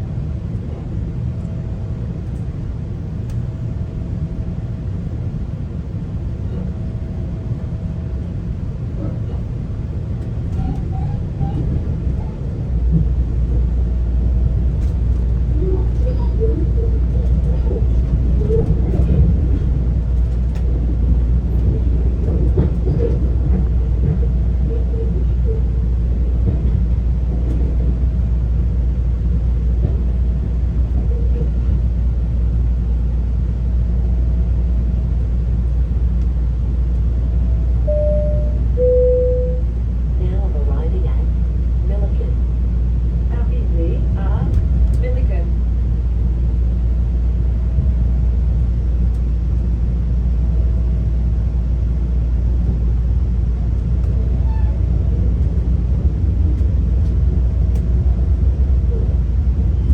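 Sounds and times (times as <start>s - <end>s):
train rumbling on track: 0.0s - 59.9s.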